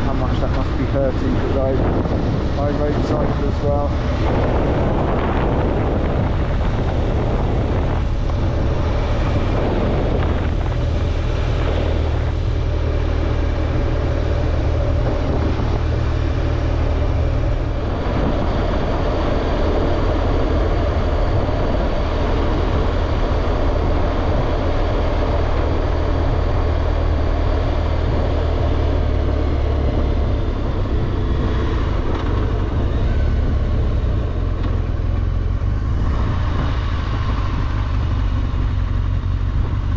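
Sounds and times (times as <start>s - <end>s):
motorcycle engine droning: 0.0s - 39.9s
road and air noise: 0.0s - 39.9s.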